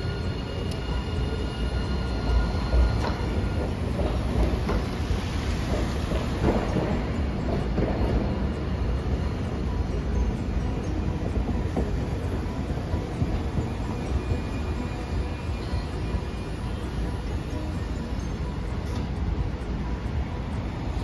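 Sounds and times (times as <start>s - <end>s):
tram low rumble: 0.0s - 21.0s
wheel clacks over rails: 2.5s - 16.2s.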